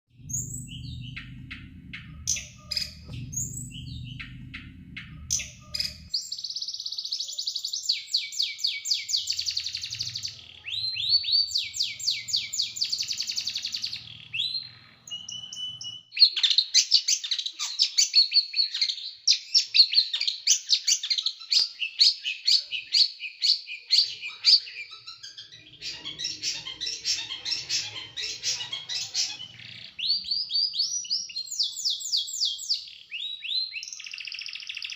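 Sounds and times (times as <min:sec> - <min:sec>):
low hum: 0:00.1 - 0:06.1
songbird trilling: 0:00.2 - 0:34.9.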